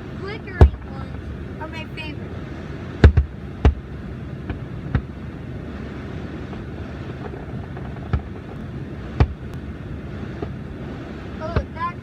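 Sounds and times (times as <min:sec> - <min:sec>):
steady low rumble: 0:00.0 - 0:12.0
distant fireworks bangs: 0:02.8 - 0:09.6.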